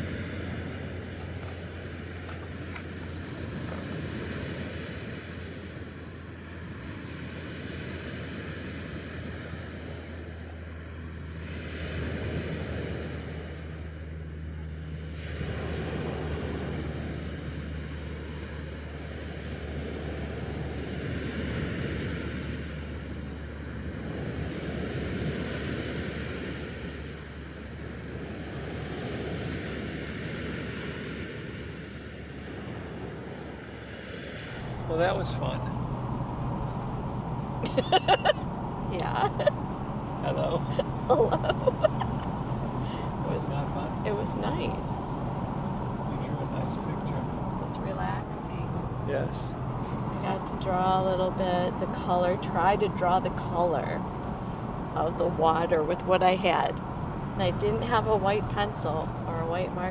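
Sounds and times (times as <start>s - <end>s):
lake waves washing in: 0.0s - 59.9s
steady low hum: 0.0s - 59.9s.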